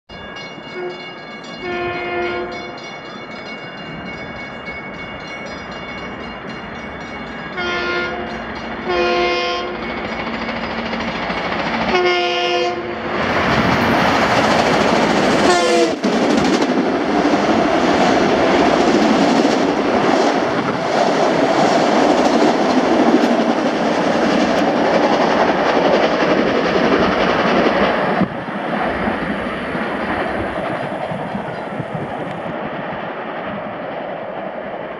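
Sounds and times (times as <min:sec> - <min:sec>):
train passing: 0:00.1 - 0:34.9
train horn blasts: 0:01.6 - 0:02.8, 0:07.6 - 0:09.8, 0:11.9 - 0:13.0, 0:15.4 - 0:16.0
wheels clacking over rails: 0:09.8 - 0:12.2, 0:13.2 - 0:32.4.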